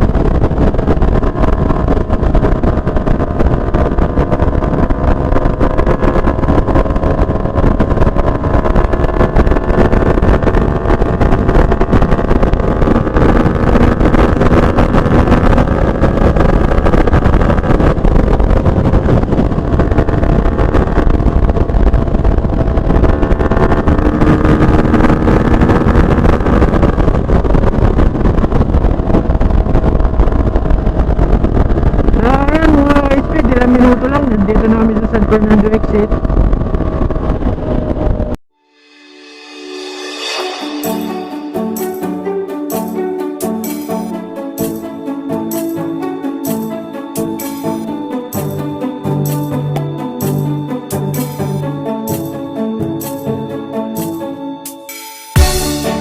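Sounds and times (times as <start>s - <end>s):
motorcycle engine cruising: 0.0s - 38.4s
wind and road noise: 0.0s - 56.0s.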